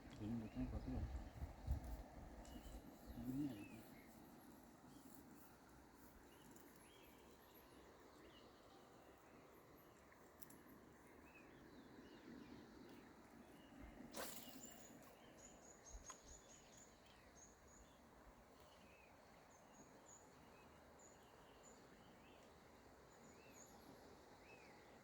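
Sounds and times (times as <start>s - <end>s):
birds chirping: 0.0s - 1.8s, 2.4s - 4.2s.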